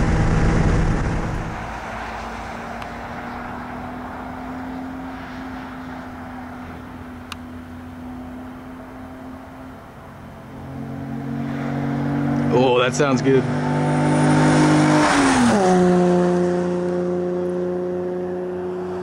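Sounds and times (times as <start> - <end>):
car engine passing by: 0.0 - 19.0.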